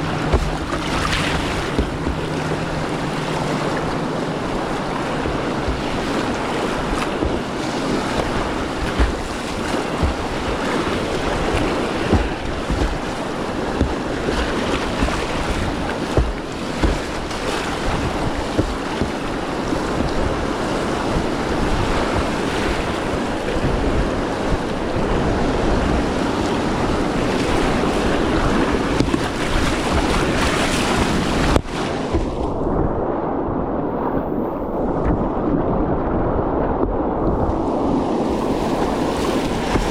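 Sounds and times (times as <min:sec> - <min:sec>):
whitewater rushing: 0:00.0 - 0:32.9, 0:37.3 - 0:39.9
water splashes: 0:00.0 - 0:39.9
wind buffeting microphone: 0:00.0 - 0:39.9.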